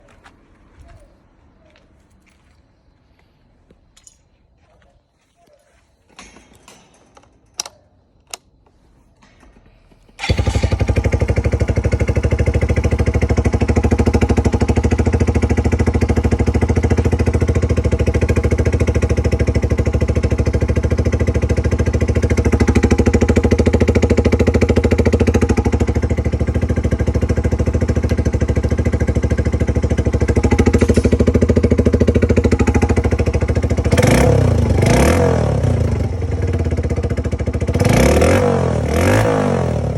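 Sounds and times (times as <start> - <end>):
engine throttle blips: 10.1 - 39.9
motorcycle engine idling: 10.2 - 39.9.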